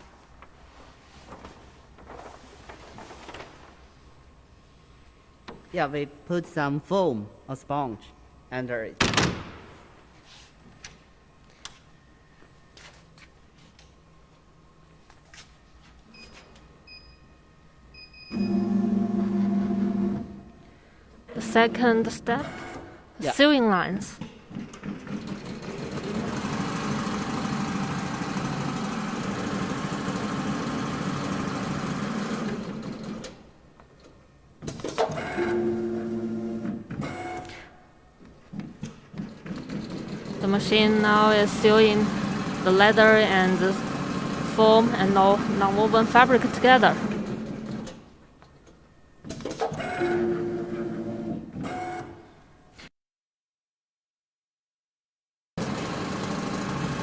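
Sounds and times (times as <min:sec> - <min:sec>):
sewing machine motor whine: 0:18.3 - 0:20.5, 0:24.7 - 0:33.4, 0:39.6 - 0:47.9, 0:55.6 - 0:57.0.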